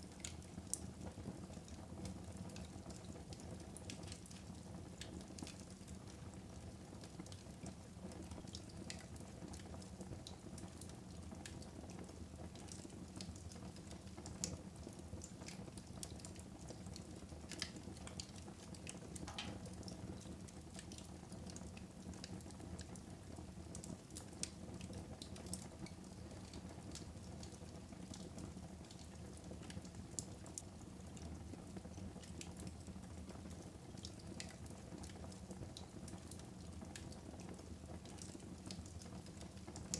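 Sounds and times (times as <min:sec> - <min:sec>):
wood fire crackling: 0:00.0 - 0:39.9
sharp fire pops: 0:19.2 - 0:20.0.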